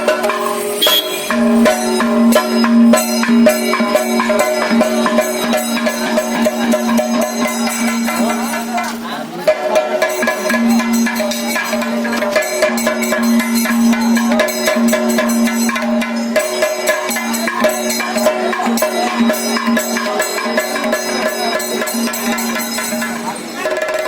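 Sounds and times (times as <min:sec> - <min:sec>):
steady held note: 0:00.0 - 0:09.1
cymbal clashes: 0:00.0 - 0:24.0
fast drum strokes: 0:00.0 - 0:24.0.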